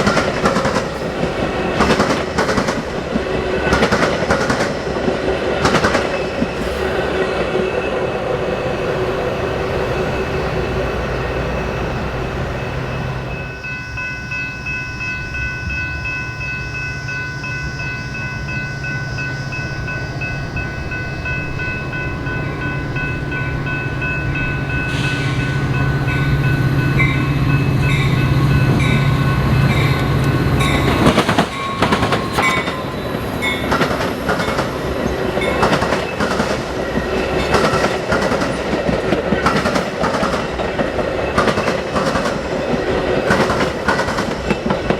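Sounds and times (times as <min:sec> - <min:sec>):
train wheels clattering: 0:00.0 - 0:07.9, 0:20.7 - 0:44.9
steady high tones: 0:06.2 - 0:36.2.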